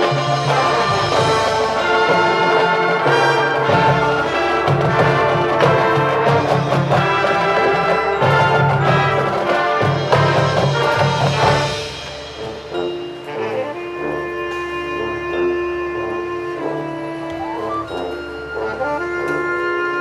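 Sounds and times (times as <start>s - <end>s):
loud brass section: 0.0s - 12.2s
marching band playing: 0.0s - 20.0s.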